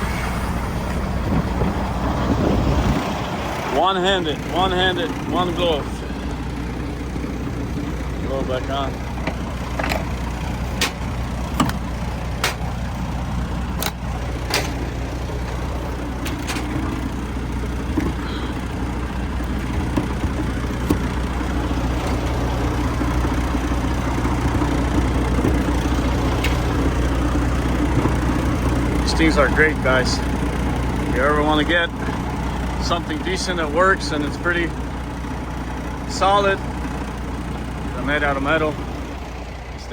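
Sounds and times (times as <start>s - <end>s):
diesel truck engine idling: 0.0s - 39.9s
sharp metallic clicks and knocks: 9.2s - 13.0s, 13.7s - 17.2s.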